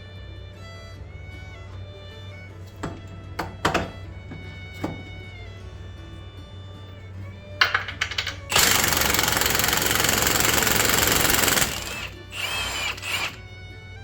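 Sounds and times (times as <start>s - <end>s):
impact wrench hammering: 2.8s - 5.2s, 7.6s - 13.4s.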